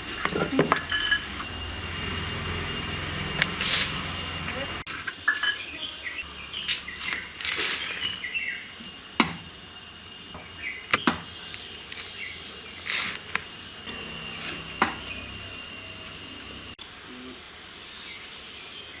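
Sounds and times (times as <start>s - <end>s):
high insect drone: 0.0s - 4.9s, 5.7s - 17.4s
small birds chirping: 5.6s - 8.8s.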